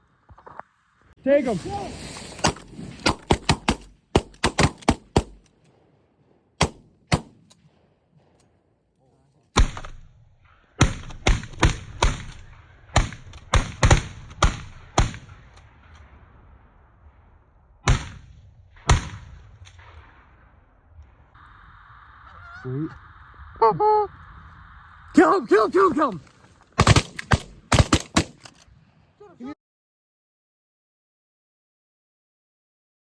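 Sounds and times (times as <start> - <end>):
shotguns firing: 2.4 - 6.0, 6.6 - 8.4, 25.2 - 28.6.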